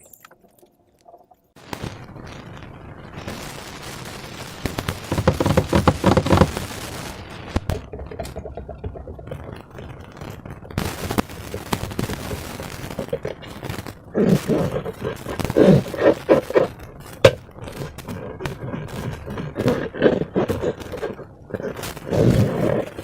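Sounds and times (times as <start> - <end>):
slime squelching: 13.0 - 23.0.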